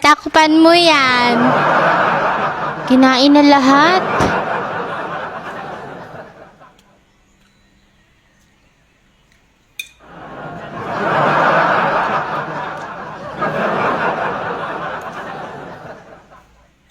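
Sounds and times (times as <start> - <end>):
person laughing hard: 1.3 - 6.4.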